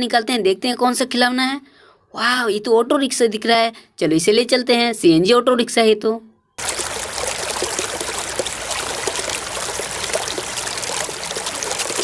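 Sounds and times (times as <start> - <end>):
running water trickling and splashing: 6.6 - 12.0.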